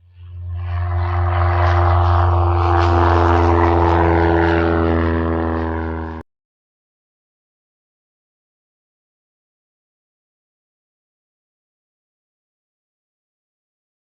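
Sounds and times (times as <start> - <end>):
propeller aircraft engine droning: 0.0 - 6.3.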